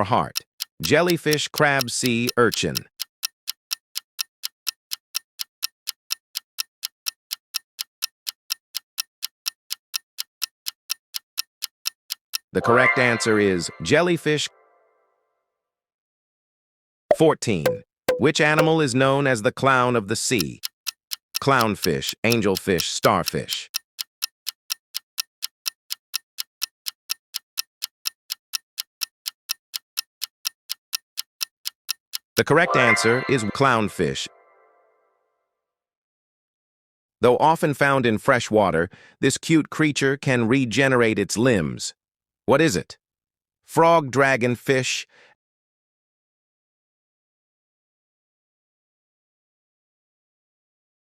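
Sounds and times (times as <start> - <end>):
clock ticking: 0.3 - 12.6, 17.1 - 18.8, 20.3 - 34.2.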